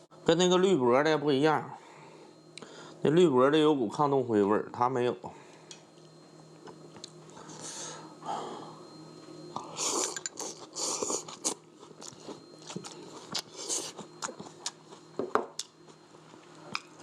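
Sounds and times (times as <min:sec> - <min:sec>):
person chewing crunchy food: 0:09.8 - 0:17.0.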